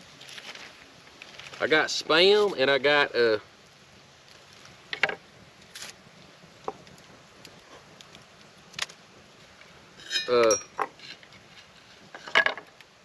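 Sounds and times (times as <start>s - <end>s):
faint steady hiss: 0.0s - 13.0s
camp cooking gear clicks and knocks: 10.2s - 12.9s.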